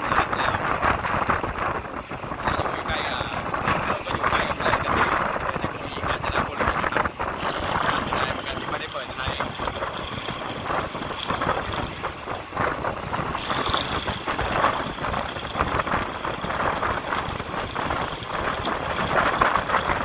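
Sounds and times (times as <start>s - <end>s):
train wheels clattering on rails: 0.0s - 20.0s
air rushing past: 9.5s - 20.0s.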